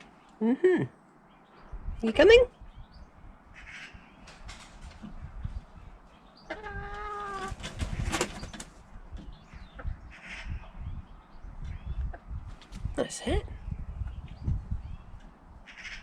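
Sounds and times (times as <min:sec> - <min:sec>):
hens calling: 0:04.9 - 0:10.8.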